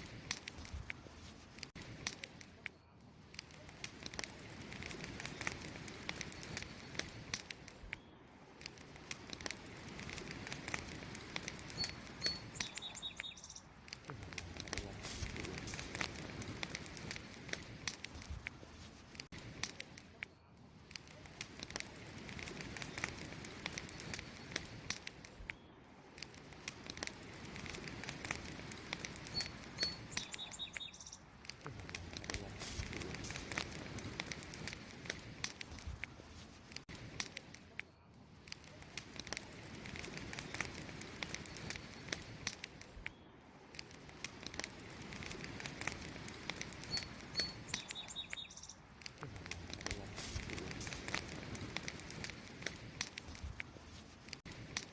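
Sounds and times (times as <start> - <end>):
campfire crackling: 0.0 - 54.9
bird chirping: 11.7 - 13.7, 29.3 - 31.3, 46.8 - 48.9.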